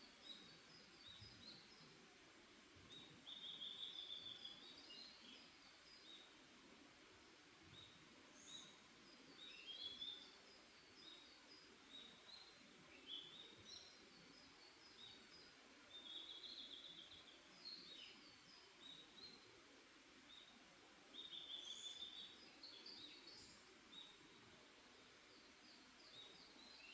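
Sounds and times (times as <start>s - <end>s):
birds chirping faintly: 0.0s - 26.9s
soft background hiss: 0.0s - 26.9s.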